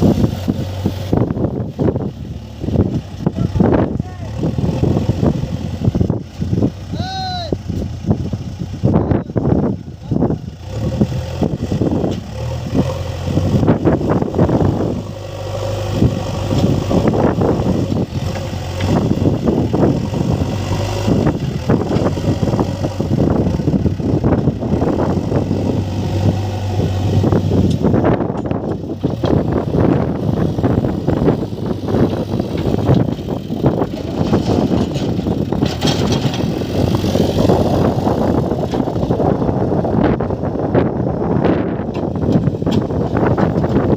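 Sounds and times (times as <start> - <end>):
heavy diesel engine running: 0.0 - 43.9
knocks and clatter: 32.1 - 36.6, 41.9 - 43.9.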